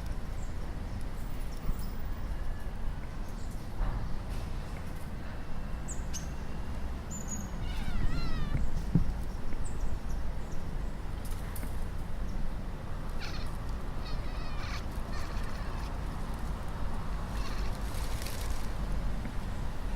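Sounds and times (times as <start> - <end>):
cat chattering: 13.2 - 15.9.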